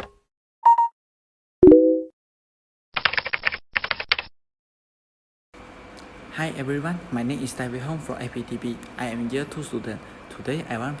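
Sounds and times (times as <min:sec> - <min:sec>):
computer keyboard typing: 0:03.0 - 0:04.3.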